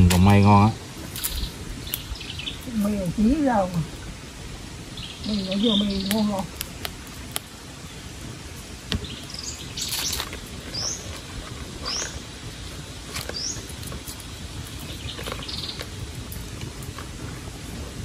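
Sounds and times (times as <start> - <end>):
low background hiss: 0.0 - 18.0
bird chirping: 1.2 - 3.2, 4.9 - 6.5, 8.9 - 12.3, 13.2 - 13.8, 14.6 - 16.0.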